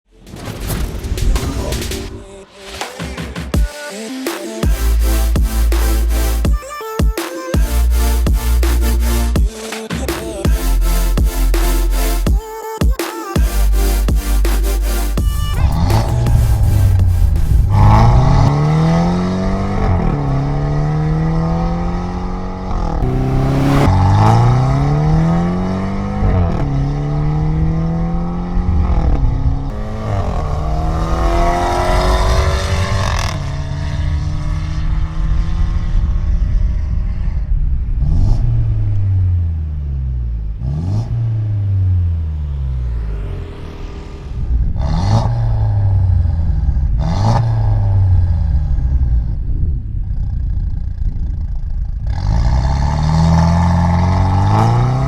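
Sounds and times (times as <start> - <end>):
engine rev blips: 13.5 - 27.9, 29.7 - 35.4, 38.0 - 46.2
exhaust cracks: 14.5 - 26.8, 29.7 - 55.0
car engine accelerating through gears: 15.5 - 49.8, 52.0 - 55.0.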